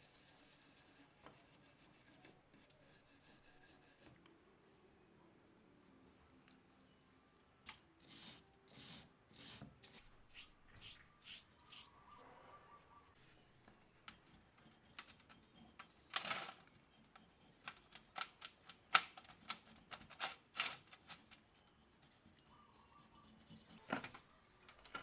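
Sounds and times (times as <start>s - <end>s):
small parts and tools clicking: 14.0s - 22.5s.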